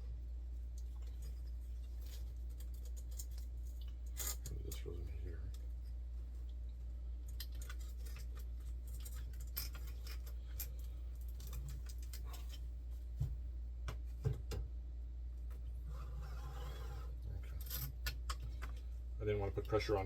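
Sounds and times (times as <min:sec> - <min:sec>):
steady low hum: 0:00.0 - 0:20.0
hands clicking and scraping parts: 0:07.2 - 0:12.7.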